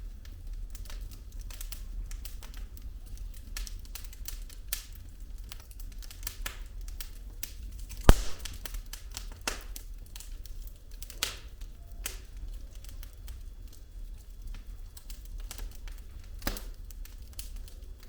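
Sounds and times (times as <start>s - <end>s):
low rumble of flame: 0.0s - 18.0s
firewood crackling: 0.8s - 18.0s
sharp pops of burning wood: 8.1s - 9.8s.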